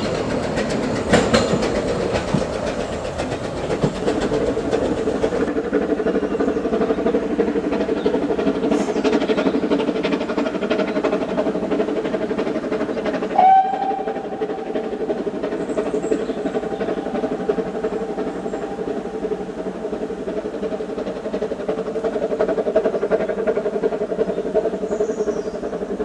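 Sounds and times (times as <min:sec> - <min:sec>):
rhythmic rattle of wheels on rail: 0:00.0 - 0:26.0
steam locomotive running: 0:00.0 - 0:26.0
steam whistle blast: 0:13.4 - 0:14.1.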